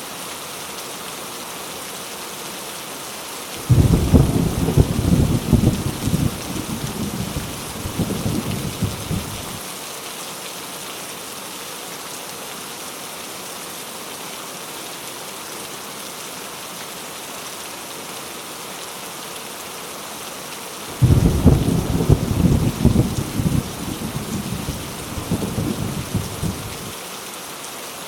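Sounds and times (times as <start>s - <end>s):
heavy rain: 0.0s - 28.0s
low rumble of thunder: 3.6s - 9.6s, 20.9s - 26.9s.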